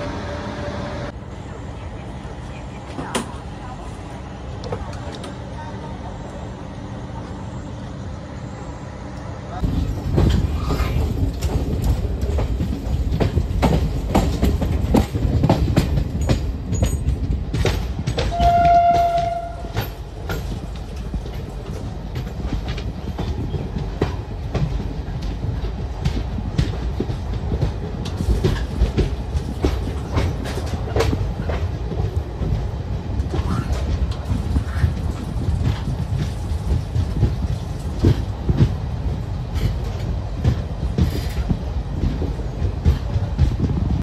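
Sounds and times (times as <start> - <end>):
train low rumble: 0.0 - 44.0
wheels clattering over rail joints: 9.6 - 44.0
train horn: 18.3 - 19.8.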